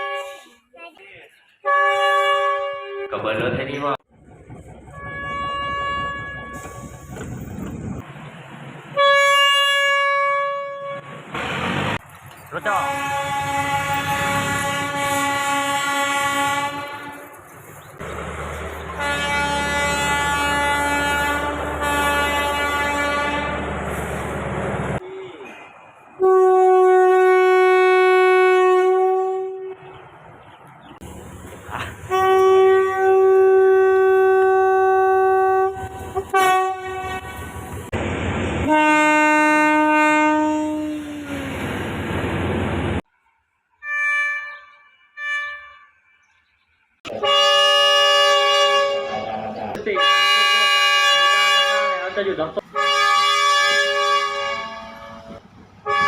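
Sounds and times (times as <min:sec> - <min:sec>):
train air horn blasts: 0:00.0 - 0:00.6, 0:01.6 - 0:03.2, 0:04.9 - 0:07.3, 0:09.0 - 0:11.2, 0:12.7 - 0:17.3, 0:19.0 - 0:24.3, 0:26.2 - 0:29.8, 0:32.1 - 0:37.7, 0:38.6 - 0:41.5, 0:43.8 - 0:46.0, 0:47.1 - 0:56.0
train running rumble: 0:03.4 - 0:10.0, 0:11.0 - 0:28.2, 0:29.7 - 0:43.0, 0:52.4 - 0:56.0.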